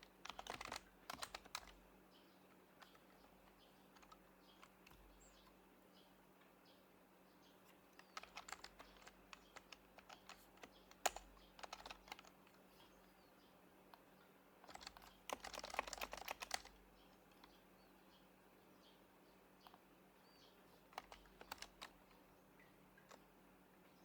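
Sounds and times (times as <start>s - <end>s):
typing on a keyboard: 0.0s - 1.8s, 2.7s - 5.6s, 7.7s - 12.6s, 14.6s - 17.6s, 20.7s - 23.3s.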